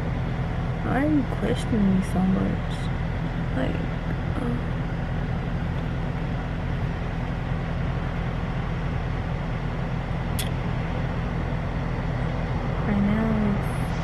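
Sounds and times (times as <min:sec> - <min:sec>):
car engine and road noise: 0:00.0 - 0:14.0
short sharp click: 0:10.4 - 0:10.6.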